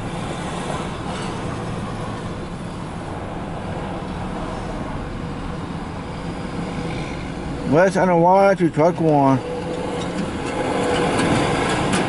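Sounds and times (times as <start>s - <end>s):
rail cars rumbling on track: 0.0s - 12.0s.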